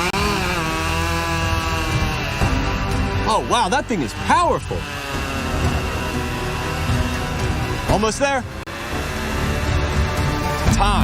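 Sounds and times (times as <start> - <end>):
chain cutting wood: 0.0 - 10.6
background music: 0.0 - 11.0
chainsaw at full throttle: 0.0 - 11.0.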